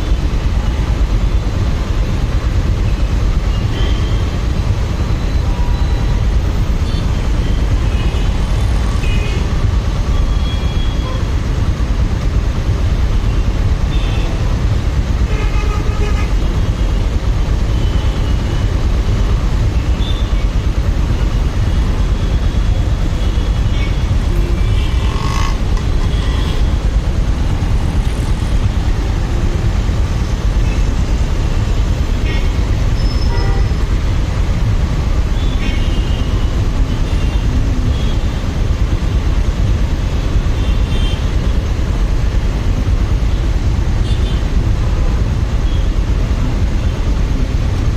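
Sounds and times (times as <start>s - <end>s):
wind and motorcycle engine rumble: 18.6s - 35.4s
car horn toots: 23.7s - 26.7s.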